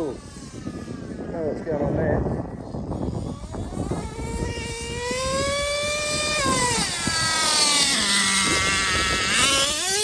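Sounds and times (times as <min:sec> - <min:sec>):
small nitro engine revving: 0:00.0 - 0:10.0
wind rumble on microphone: 0:00.0 - 0:10.0.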